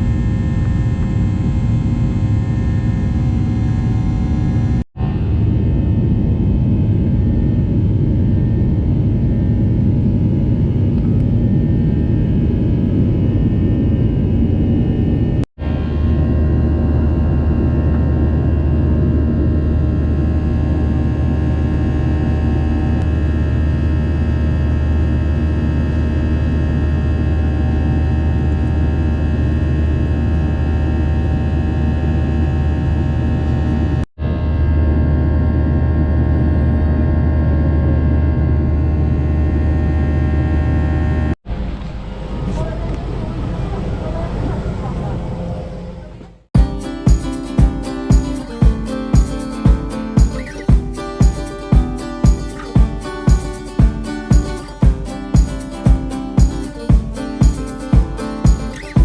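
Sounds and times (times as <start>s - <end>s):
jet engine cabin hum: 0.0s - 30.0s.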